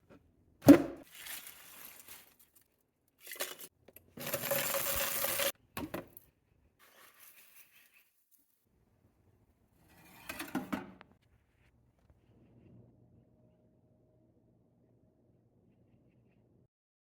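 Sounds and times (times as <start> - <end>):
plastic scraps clattering: 0.7 - 6.2.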